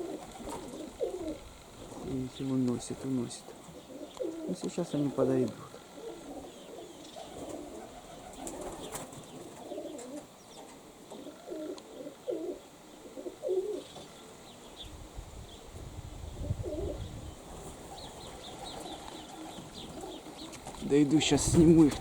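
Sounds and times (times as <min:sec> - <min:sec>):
pigeons cooing: 0:00.0 - 0:22.0
wind buffeting microphone: 0:14.8 - 0:18.9, 0:20.7 - 0:22.0.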